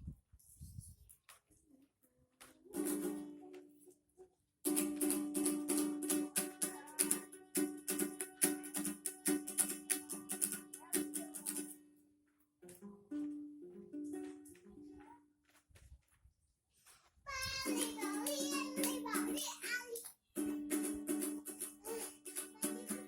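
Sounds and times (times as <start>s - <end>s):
small stringed instrument strumming: 2.7s - 3.7s, 4.7s - 12.0s, 12.6s - 15.3s, 17.3s - 23.0s.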